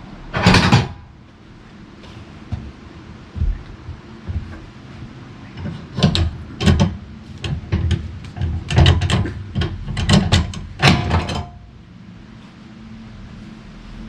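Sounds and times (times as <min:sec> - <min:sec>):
steady low hum: 0:00.0 - 0:14.0
knocks and clanks: 0:00.3 - 0:01.2, 0:02.0 - 0:11.7.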